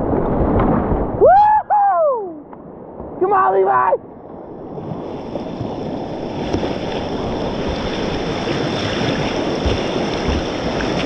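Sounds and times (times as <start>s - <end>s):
wind on microphone: 4.5s - 11.0s
whitewater rushing: 5.5s - 11.0s.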